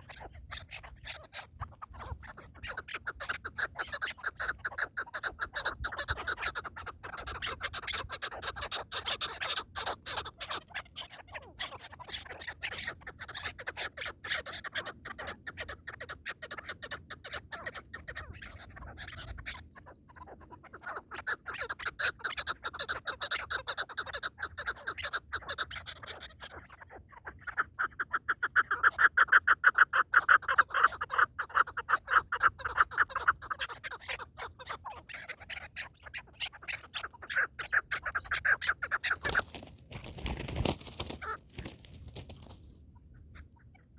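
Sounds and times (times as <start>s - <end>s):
partridges clucking: 38.8s - 42.8s.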